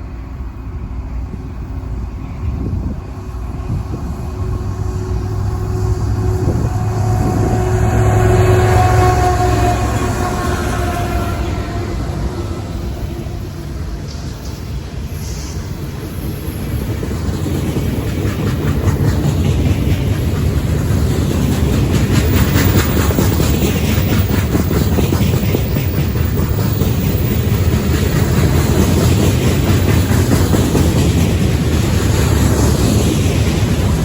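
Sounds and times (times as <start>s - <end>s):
freight train low rumble: 0.0s - 34.0s
wheels clacking over rail joints: 16.1s - 34.0s.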